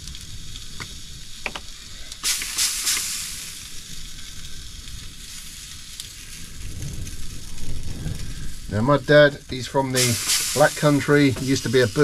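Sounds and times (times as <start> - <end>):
sausages sizzling in a pan: 0.0 - 12.0
spray oil squirts: 2.2 - 3.6, 9.9 - 12.0.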